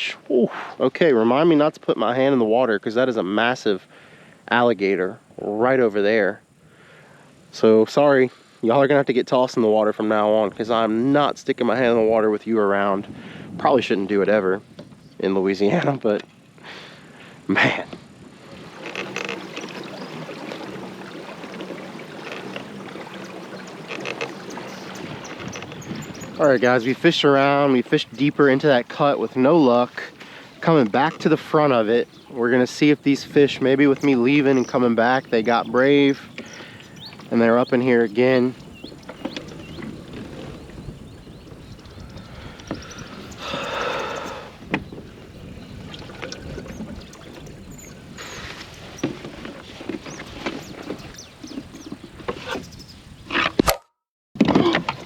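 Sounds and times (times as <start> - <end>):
water lapping and trickling: 18.0 - 53.6, 54.4 - 55.0
soft water splashes: 18.3 - 52.6.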